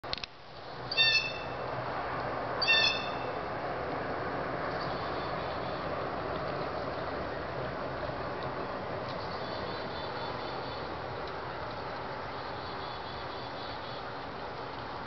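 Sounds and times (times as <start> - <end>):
bird calling nasal notes: 0.9 - 1.6, 2.6 - 3.3.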